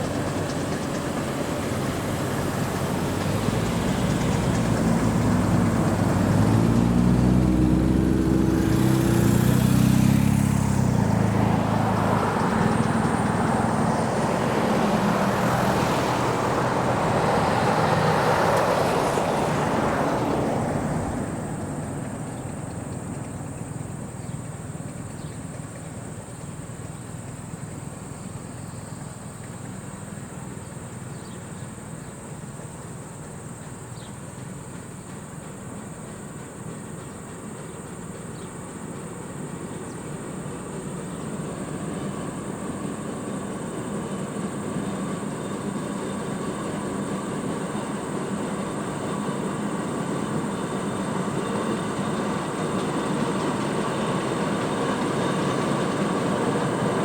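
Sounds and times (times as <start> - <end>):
vehicle engine passing: 0.0 - 28.7
high insect trill: 0.0 - 57.0
road noise: 0.0 - 57.0.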